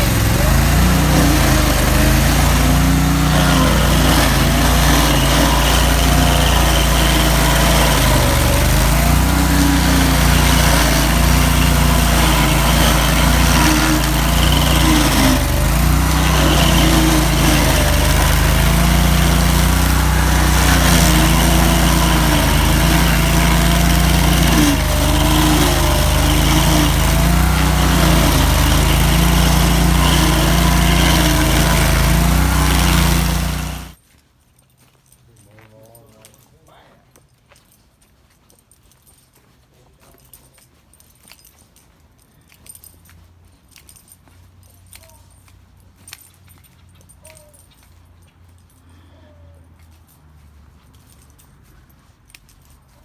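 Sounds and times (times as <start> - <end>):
stump grinder engine: 0.0 - 34.0.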